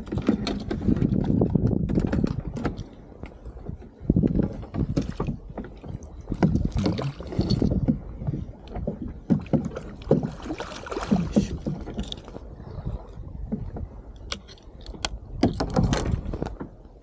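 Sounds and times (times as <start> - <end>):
knocks and thuds against hull: 0.0 - 12.4, 13.4 - 17.0
water splashing: 4.8 - 8.1, 8.9 - 13.2.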